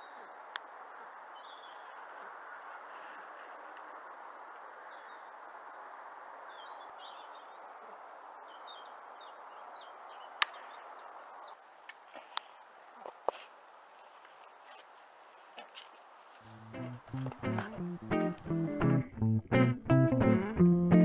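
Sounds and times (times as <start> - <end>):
small birds chirping: 0.0 - 2.1, 4.6 - 11.7
steady background noise: 0.0 - 18.8.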